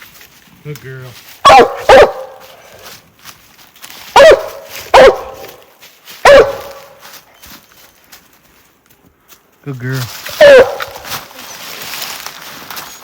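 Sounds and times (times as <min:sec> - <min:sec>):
dog barking loudly: 0:01.4 - 0:02.4, 0:04.1 - 0:05.6, 0:06.2 - 0:07.0, 0:10.4 - 0:11.0.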